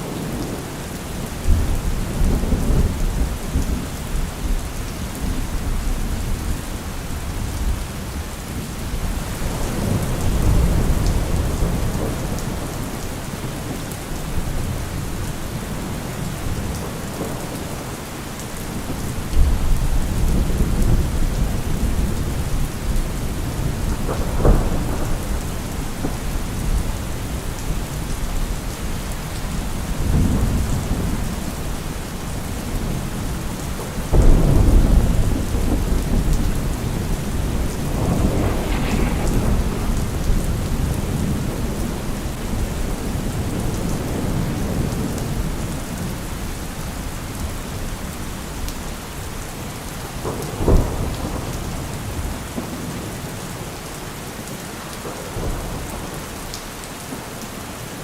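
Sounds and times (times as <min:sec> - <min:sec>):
rain falling: 0:00.0 - 0:58.0
thunder rumbling: 0:08.8 - 0:47.1.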